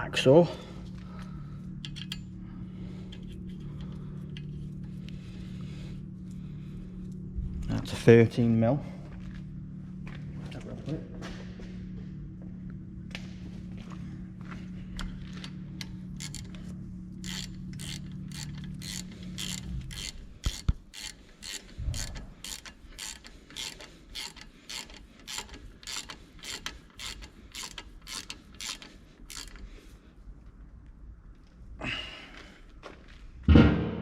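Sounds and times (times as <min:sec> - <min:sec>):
steady low hum: 0:00.0 - 0:34.0
ratchet wrench clicking: 0:01.8 - 0:02.3, 0:15.3 - 0:16.6, 0:17.2 - 0:29.7.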